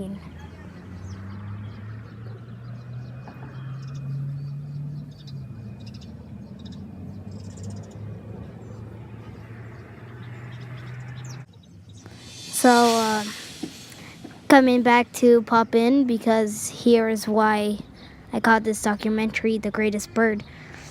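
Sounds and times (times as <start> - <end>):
small birds chirping: 0.1 - 13.8.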